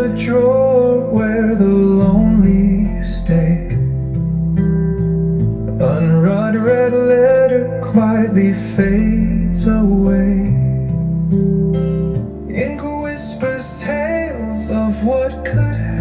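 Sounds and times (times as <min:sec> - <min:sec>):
guitar plucked and strummed: 0:00.0 - 0:16.0
gliding melody line: 0:00.1 - 0:16.0.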